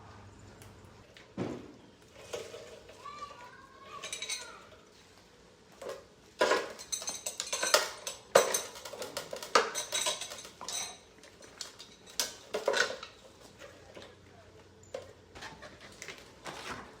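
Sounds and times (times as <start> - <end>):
metal hardware clinking: 6.4 - 13.2.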